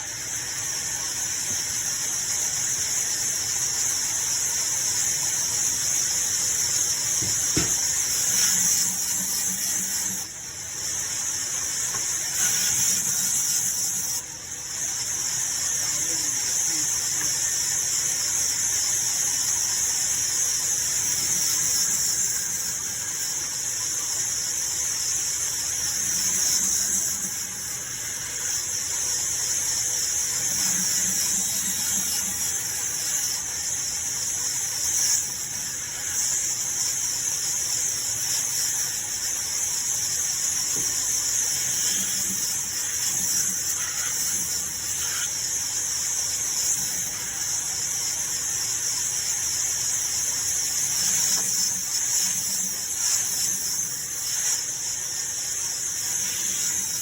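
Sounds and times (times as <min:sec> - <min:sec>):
power tool whining on wood: 0:00.0 - 0:57.0.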